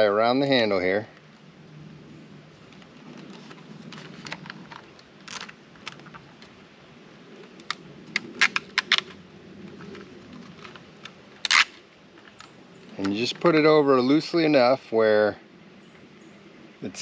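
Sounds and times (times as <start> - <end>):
zip tie clicking: 11.4 - 11.8.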